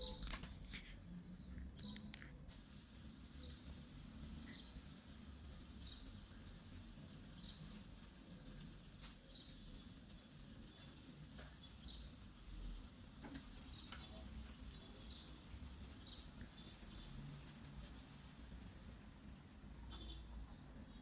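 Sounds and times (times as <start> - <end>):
soft clicks: 1.6 - 2.4.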